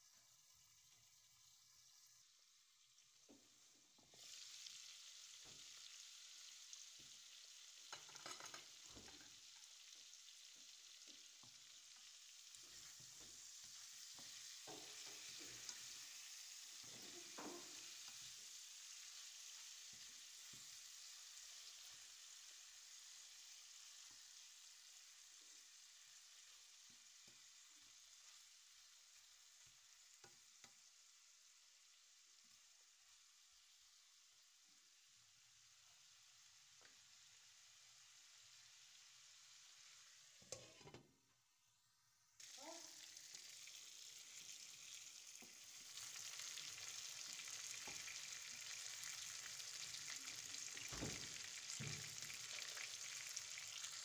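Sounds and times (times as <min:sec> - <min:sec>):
chicken wings sizzling in oil: 0:00.0 - 0:54.0
wooden spatula scraping pan: 0:40.4 - 0:41.0.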